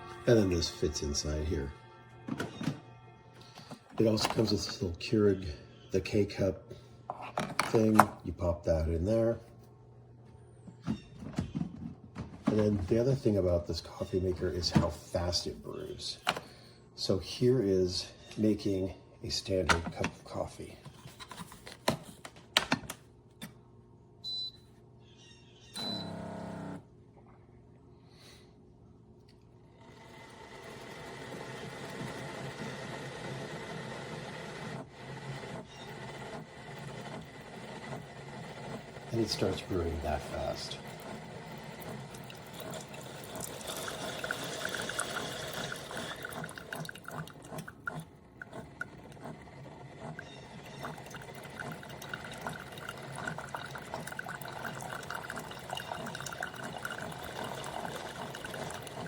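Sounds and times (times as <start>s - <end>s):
coffee streaming into cup: 3.5s - 6.3s, 12.5s - 16.4s, 29.8s - 59.0s
drips and spatters: 39.2s - 49.0s, 50.2s - 59.0s.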